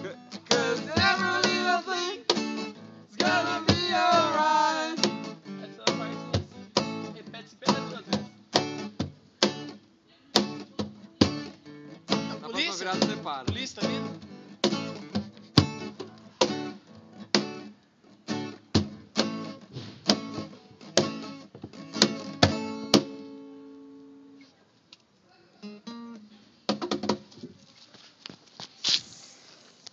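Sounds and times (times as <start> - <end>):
acoustic guitar strumming chords: 0.0 - 9.8, 10.4 - 24.4
taps on guitar: 0.1 - 17.7, 18.4 - 23.3.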